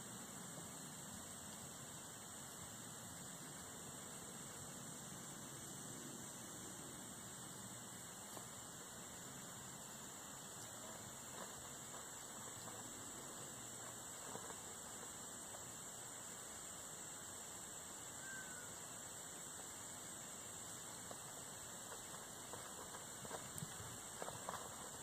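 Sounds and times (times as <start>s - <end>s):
faint ticks and rustles: 0.0s - 25.0s
steady faint hiss: 0.0s - 25.0s
falling bird chirp: 18.2s - 18.8s.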